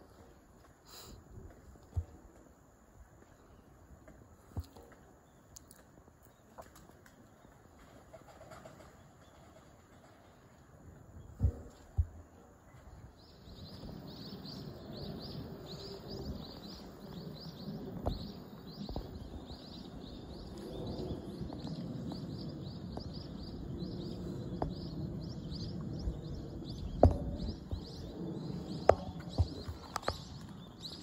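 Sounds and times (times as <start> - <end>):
low background rumble: 9.0 - 31.0
bird chirping: 12.7 - 31.0.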